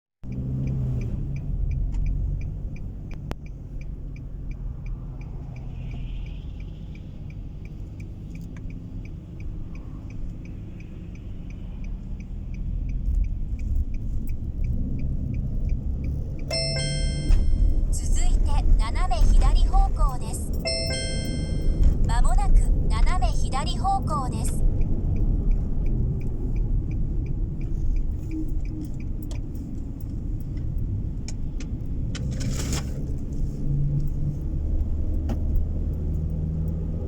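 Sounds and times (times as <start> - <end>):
turn signal clicking: 0.2 - 37.0
car cabin engine and road rumble: 0.3 - 37.0
electronic navigation chime: 16.5 - 24.5.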